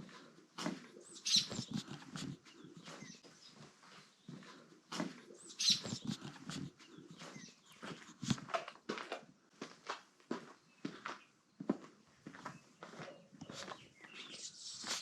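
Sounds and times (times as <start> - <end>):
dog breathing: 0.0 - 8.7, 13.5 - 15.0
footsteps and scuffs: 1.6 - 15.0.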